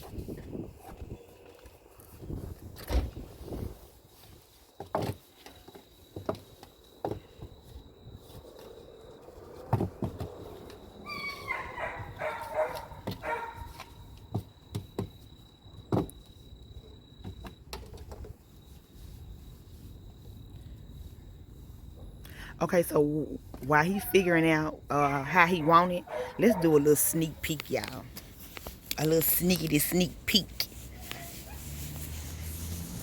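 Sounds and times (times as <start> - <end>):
dog barking and yipping: 11.1 - 13.8, 25.0 - 27.4.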